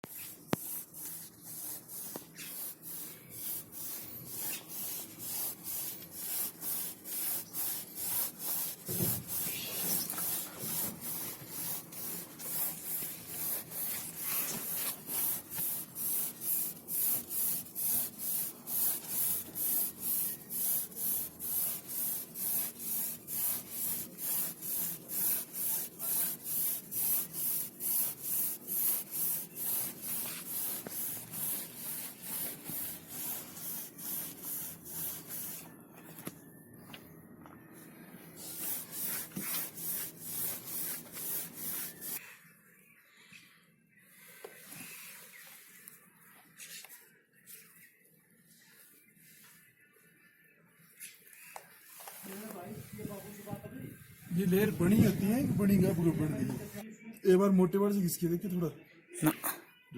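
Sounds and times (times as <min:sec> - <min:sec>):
emery paper rubbing on metal: 0:00.0 - 0:35.7, 0:38.4 - 0:42.2, 0:51.8 - 0:56.8.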